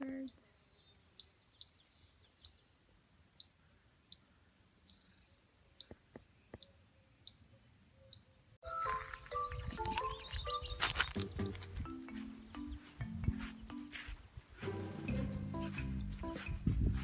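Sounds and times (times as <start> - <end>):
songbird chip notes: 8.0 - 17.0
background music: 8.6 - 17.0.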